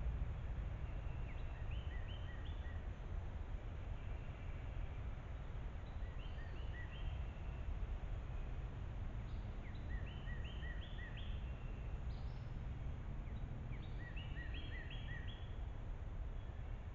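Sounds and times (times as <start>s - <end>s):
low background rumble: 0.0s - 6.3s, 7.0s - 16.9s
songbird singing: 0.8s - 3.1s, 5.8s - 7.8s, 9.2s - 16.8s.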